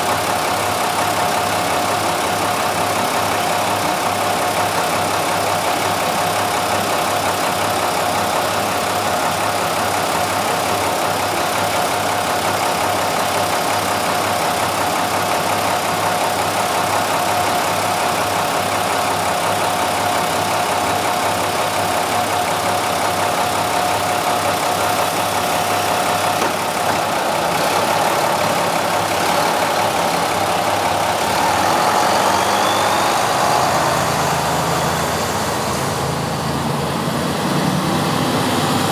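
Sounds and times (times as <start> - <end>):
diesel engine idling: 0.0 - 38.7
short rising whine: 30.6 - 37.2
high-pitched whine: 30.7 - 37.3.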